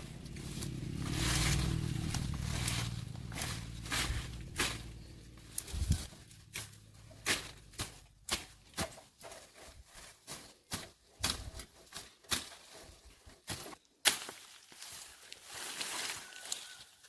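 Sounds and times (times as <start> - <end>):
hissing scraping noise: 0.0 - 6.1.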